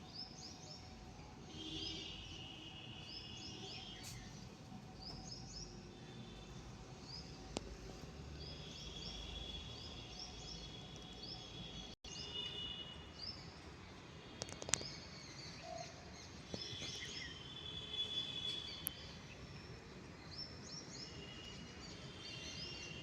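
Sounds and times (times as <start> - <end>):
small birds chirping: 1.7 - 6.4.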